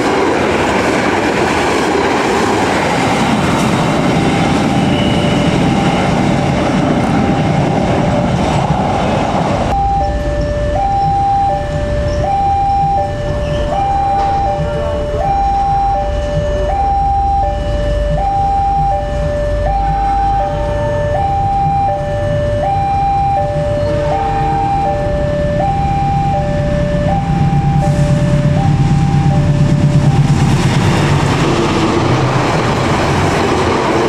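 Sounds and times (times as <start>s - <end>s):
low rumble of train: 0.0s - 34.0s
two-tone crossing alarm: 0.0s - 34.0s.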